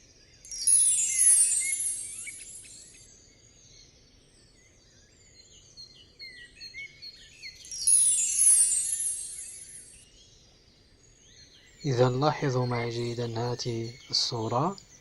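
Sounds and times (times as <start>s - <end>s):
small birds chirping: 0.0s - 15.0s
falling chime sweep: 7.8s - 10.0s.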